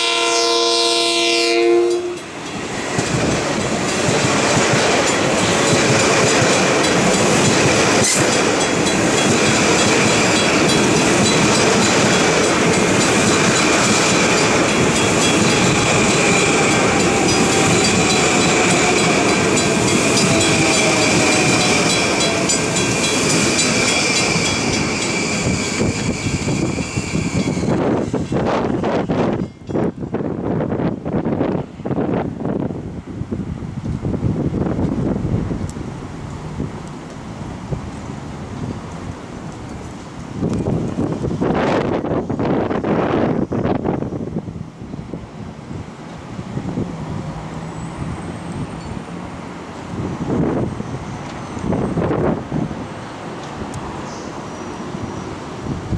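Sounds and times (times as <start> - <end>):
train horn chord: 0.0 - 2.3
train wheels rumbling on rails: 0.0 - 55.9.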